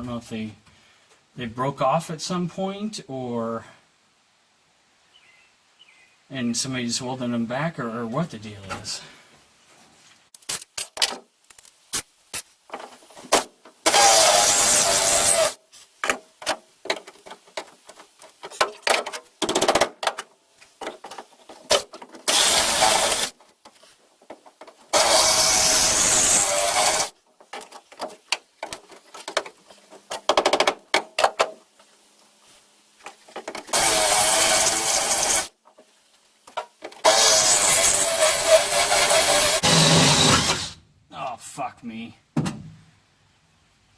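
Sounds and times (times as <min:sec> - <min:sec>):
electric drill cutting steel: 0:13.9 - 0:15.6, 0:22.3 - 0:23.3, 0:25.0 - 0:27.1, 0:33.7 - 0:35.5, 0:37.0 - 0:40.8
clicks and handling knocks: 0:16.0 - 0:22.3, 0:27.3 - 0:31.9, 0:33.0 - 0:33.7.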